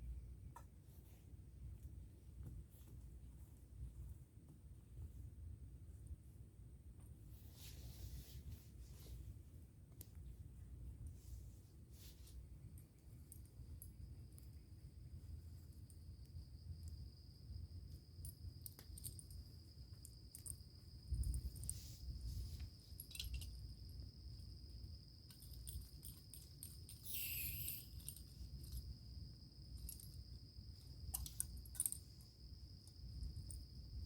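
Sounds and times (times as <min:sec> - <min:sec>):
small clicks and rustles: 0:00.5 - 0:17.1, 0:17.7 - 0:34.0
crickets chirping: 0:12.0 - 0:34.0
short hiss: 0:27.0 - 0:27.9.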